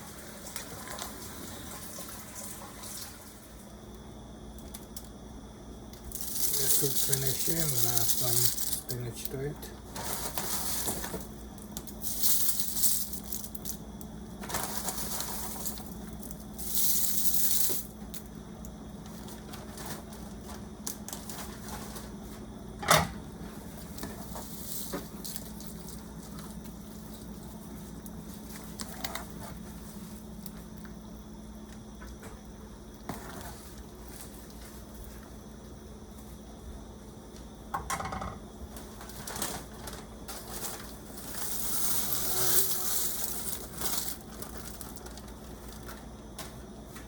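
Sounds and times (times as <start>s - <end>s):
low steady hum: 3.1s - 47.0s
rustling hiss: 6.1s - 9.3s, 12.0s - 13.8s, 41.2s - 44.9s.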